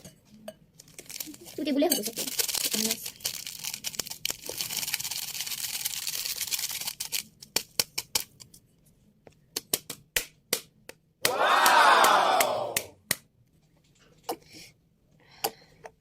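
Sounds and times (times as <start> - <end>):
loud falling call: 11.3 - 12.8.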